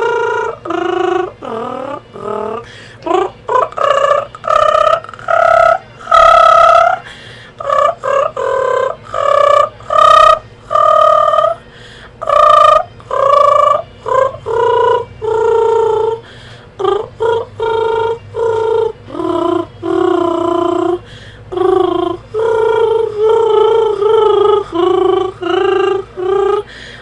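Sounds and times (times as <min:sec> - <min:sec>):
girl humming a melody: 0:00.0 - 0:27.0.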